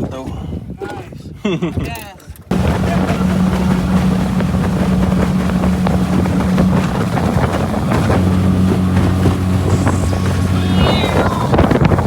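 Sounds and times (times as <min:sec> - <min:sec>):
wind buffeting microphone: 0:00.0 - 0:12.0
outboard motor running: 0:02.5 - 0:12.0.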